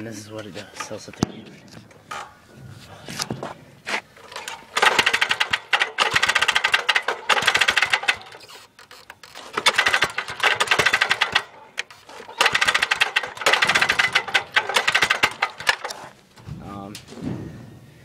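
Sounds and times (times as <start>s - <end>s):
small engine cranking clatter: 4.2s - 16.1s.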